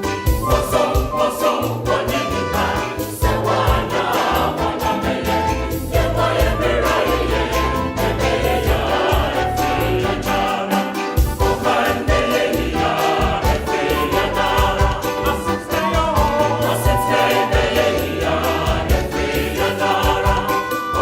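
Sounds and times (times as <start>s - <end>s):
bass line: 0.0s - 21.0s
choir singing: 0.0s - 21.0s.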